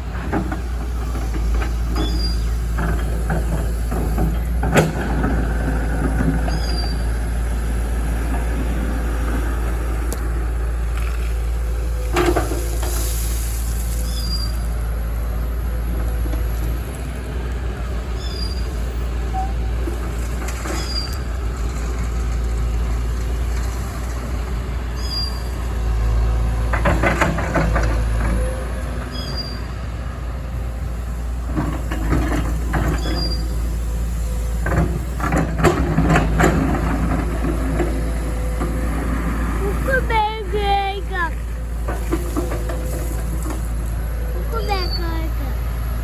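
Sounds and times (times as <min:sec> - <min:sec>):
excavator diesel engine rumbling: 0:00.0 - 0:46.0
bucket clanking and scraping: 0:34.6 - 0:45.3.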